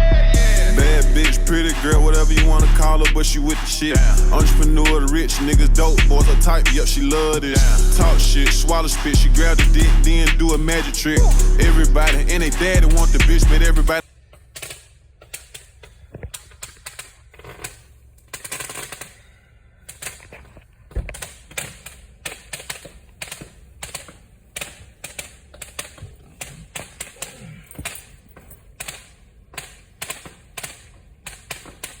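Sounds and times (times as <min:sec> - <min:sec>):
firecrackers popping: 0:16.3 - 0:19.2.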